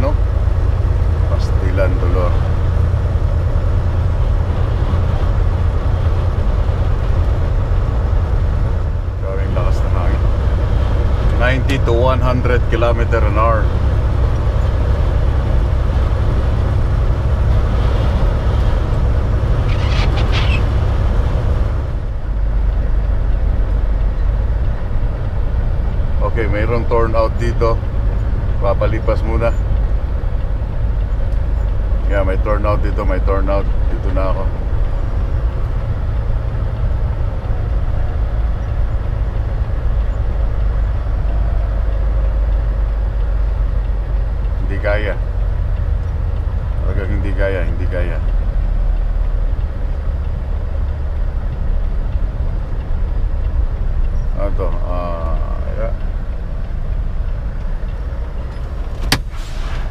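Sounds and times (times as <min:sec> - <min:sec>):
diesel engine idling: 0:00.0 - 0:59.9
truck rumbling in strong wind: 0:00.0 - 0:59.9.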